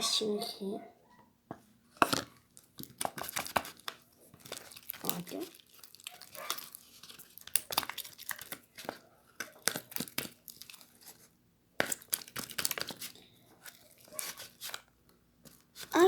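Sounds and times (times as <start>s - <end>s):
wet slime clicks and crackles: 2.6s - 8.8s, 9.4s - 10.9s, 11.8s - 13.1s.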